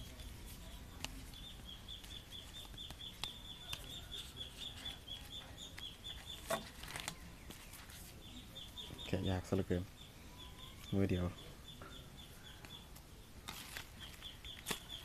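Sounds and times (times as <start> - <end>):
bird chirping: 0.6 - 15.0
cardboard packaging clicks: 13.4 - 15.0.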